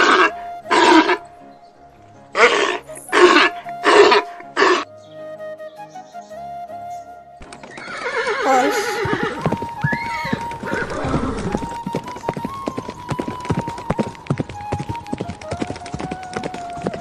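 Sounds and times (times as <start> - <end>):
horse whinnying: 0.0 - 1.3, 2.4 - 4.9, 7.7 - 14.1
hooves clip-clopping: 7.4 - 17.0.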